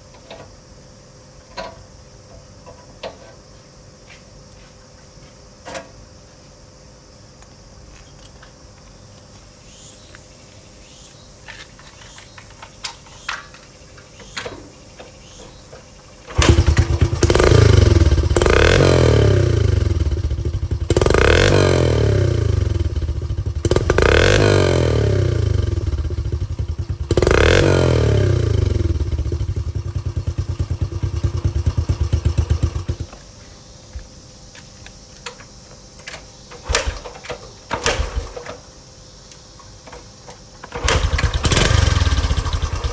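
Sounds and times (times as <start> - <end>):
motorcycle engine revving: 16.3 - 33.1, 40.7 - 42.9.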